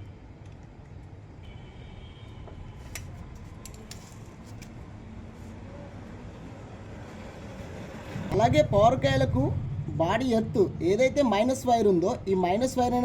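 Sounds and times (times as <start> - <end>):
low background rumble: 8.2 - 13.0.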